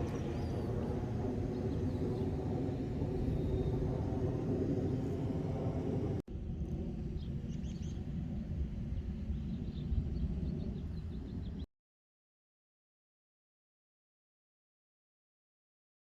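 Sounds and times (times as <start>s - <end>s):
low outdoor rumble: 0.0s - 11.6s.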